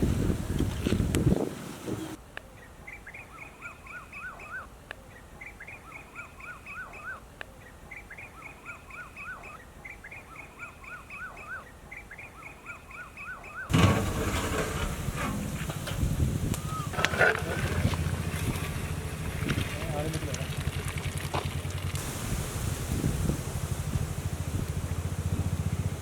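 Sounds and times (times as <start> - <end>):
bird singing: 1.9 - 13.8, 16.5 - 17.5.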